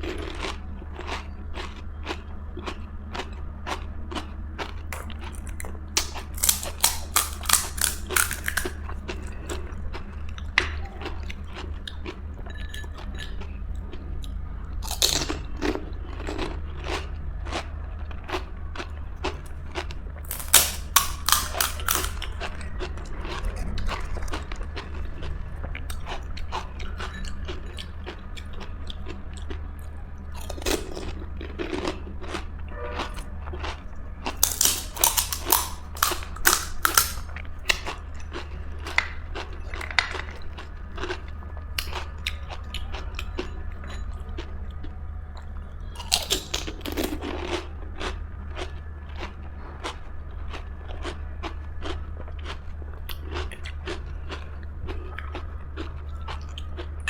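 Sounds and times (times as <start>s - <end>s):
chewing: 0.0s - 57.0s
steady low hum: 0.0s - 57.0s
crunching bites into crisp shells: 4.9s - 8.9s, 14.8s - 15.4s, 20.2s - 22.4s, 34.3s - 41.2s, 46.0s - 47.5s.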